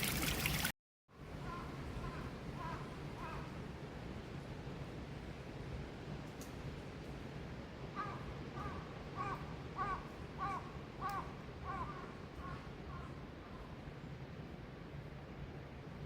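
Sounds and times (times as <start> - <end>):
crow cawing: 1.5 - 3.5, 8.0 - 13.2.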